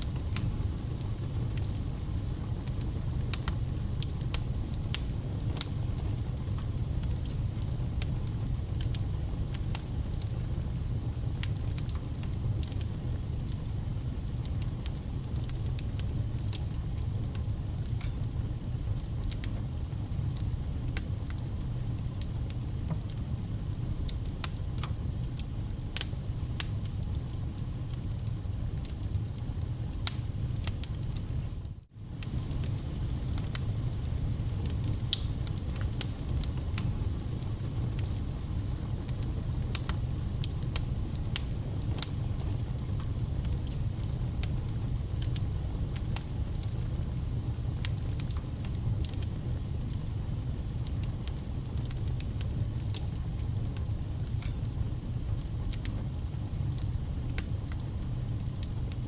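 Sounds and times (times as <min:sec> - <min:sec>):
fire rumbling and hissing: 0:00.0 - 0:59.0
logs crackling and popping: 0:13.6 - 0:31.3, 0:32.1 - 0:47.1, 0:50.8 - 0:59.0.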